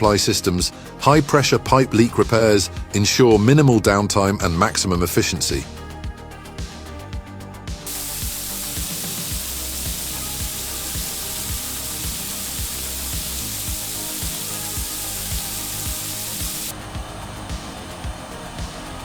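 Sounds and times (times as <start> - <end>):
music with steady beat: 5.8 - 19.0
high-pressure water hissing: 7.9 - 19.0.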